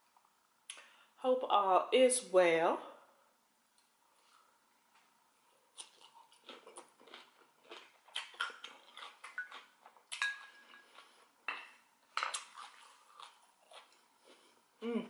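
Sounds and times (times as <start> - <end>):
wet crunchy chewing: 5.7 - 10.3, 12.3 - 14.4
utensil clinking on glass bowl: 10.2 - 10.7.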